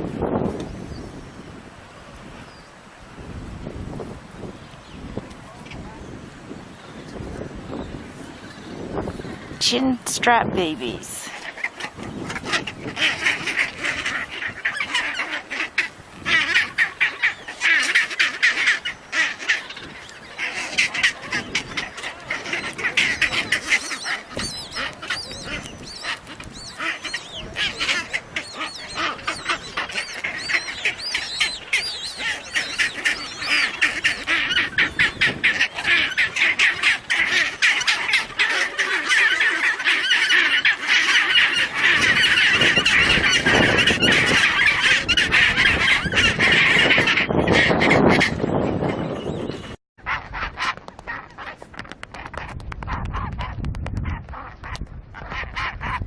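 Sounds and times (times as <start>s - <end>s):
penguin colony calling: 9.2s - 49.4s, 50.1s - 53.5s.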